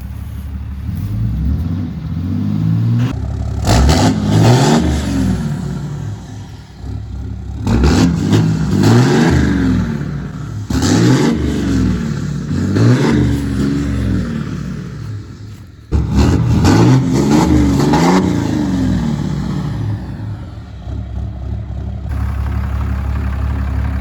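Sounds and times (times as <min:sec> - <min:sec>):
diesel truck engine revving: 0:00.0 - 0:24.0.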